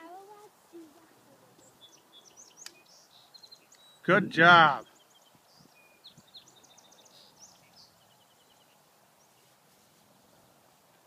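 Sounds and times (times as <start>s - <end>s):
faint hiss: 4.7s - 11.0s.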